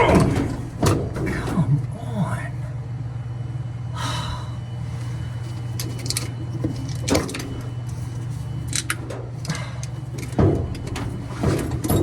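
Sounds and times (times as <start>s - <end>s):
steady low hum: 0.0s - 12.0s
metal parts and tools clicking: 5.8s - 12.0s.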